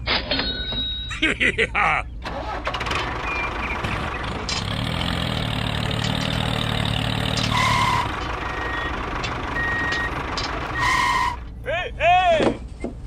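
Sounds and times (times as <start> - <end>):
vehicle engine humming: 2.0 - 13.0.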